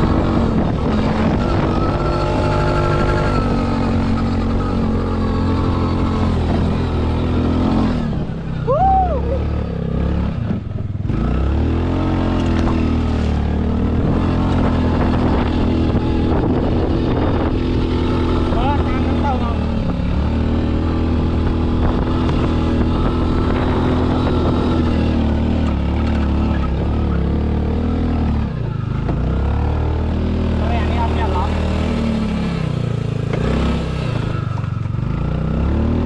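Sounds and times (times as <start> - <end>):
quad bike engine running: 0.0 - 36.0.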